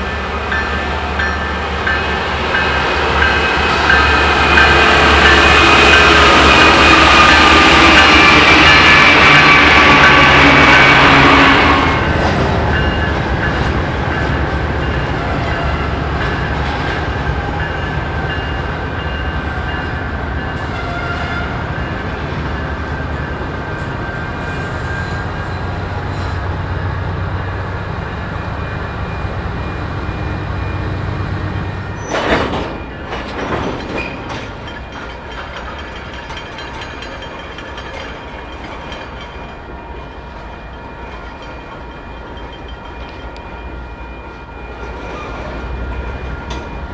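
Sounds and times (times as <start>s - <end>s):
freight train rumbling: 0.0s - 46.9s
train wheels and brakes squealing: 0.0s - 46.9s.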